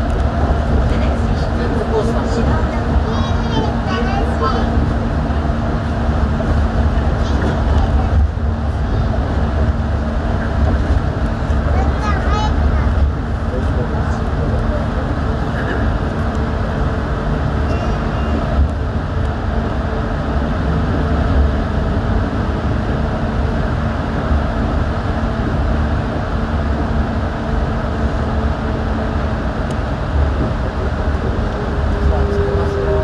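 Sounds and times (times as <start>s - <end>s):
rumble of train tyres: 0.0s - 33.0s.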